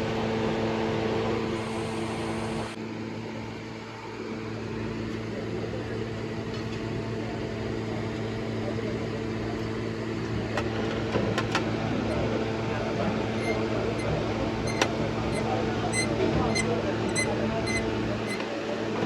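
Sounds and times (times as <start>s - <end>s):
machine hum: 10.7s - 18.6s.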